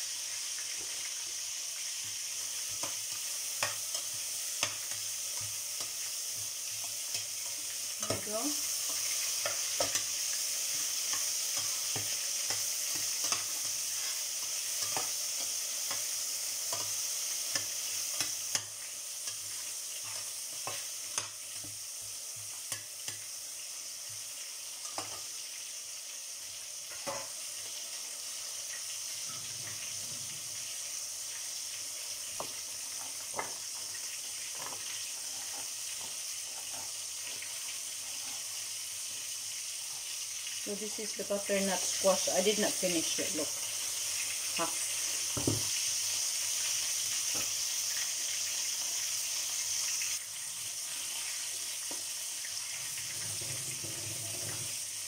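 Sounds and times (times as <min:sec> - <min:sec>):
food sizzling in a pot: 0:00.0 - 0:55.0
metal spatula scraping a pot: 0:06.7 - 0:21.3, 0:34.5 - 0:37.0, 0:53.0 - 0:54.8.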